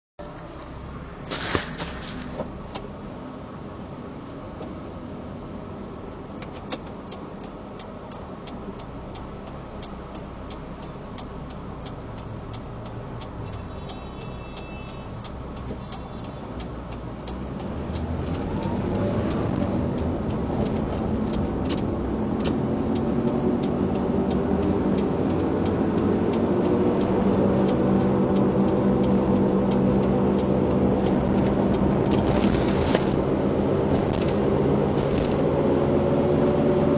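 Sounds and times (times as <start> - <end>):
vehicle engine accelerating: 16.7 - 36.9.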